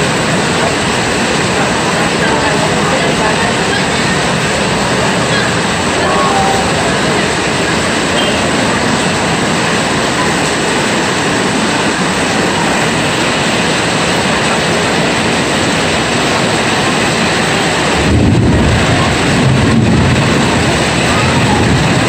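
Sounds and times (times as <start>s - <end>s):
heavy rain hissing: 0.0s - 22.0s
low rumble: 17.9s - 22.0s.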